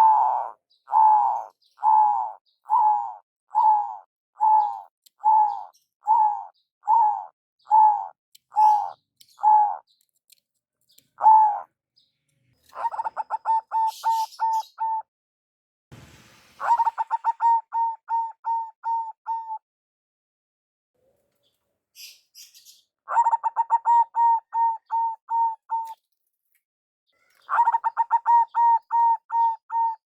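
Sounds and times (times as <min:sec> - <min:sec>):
dove cooing: 0:00.0 - 0:09.8, 0:11.2 - 0:11.7, 0:12.7 - 0:15.0, 0:16.6 - 0:19.6, 0:23.1 - 0:26.0, 0:27.5 - 0:30.0.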